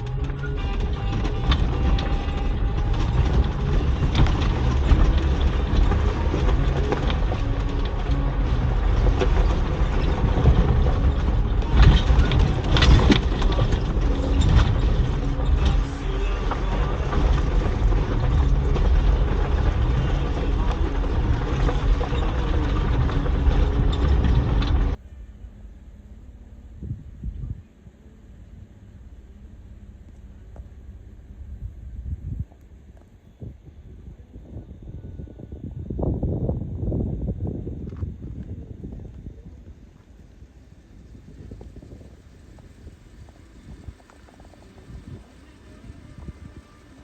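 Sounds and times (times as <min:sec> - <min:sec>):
vehicle rumbling and rattling: 0:00.0 - 0:47.0.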